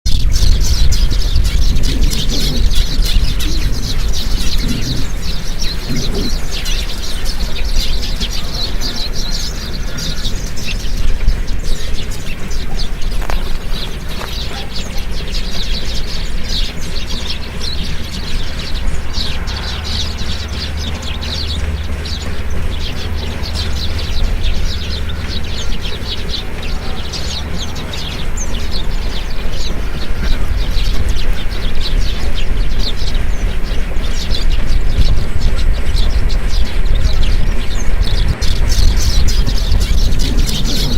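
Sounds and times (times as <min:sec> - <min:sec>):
low rumble: 0:00.1 - 0:40.9
small birds chirping: 0:00.1 - 0:40.9.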